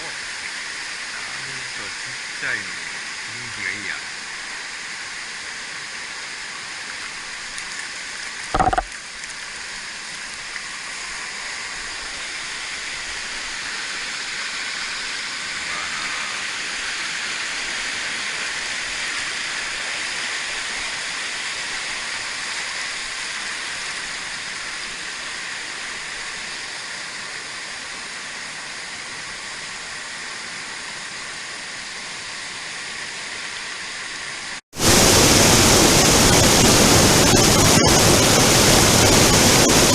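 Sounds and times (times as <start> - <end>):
stream rushing over rocks: 0.0 - 39.9
brief thump: 8.5 - 8.9.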